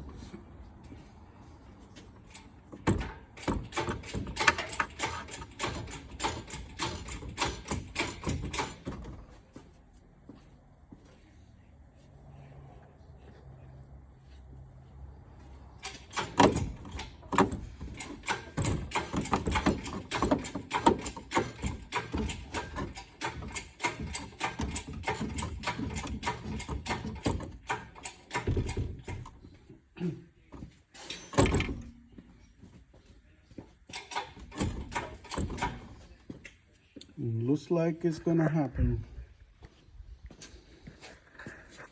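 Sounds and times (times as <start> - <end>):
metallic clicking and clanking chain: 2.3 - 9.0, 15.8 - 17.3, 17.9 - 29.3, 31.0 - 31.8, 33.9 - 35.9.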